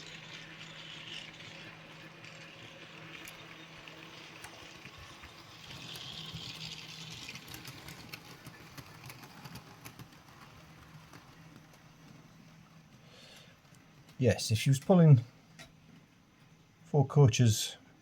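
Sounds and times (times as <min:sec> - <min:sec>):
model train motor hum: 0:00.0 - 0:12.5
wheels clicking on rail joints: 0:00.0 - 0:16.1.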